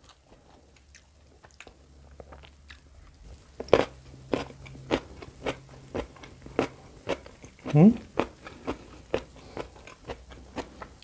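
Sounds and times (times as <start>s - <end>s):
person crunching food: 0.0s - 11.0s.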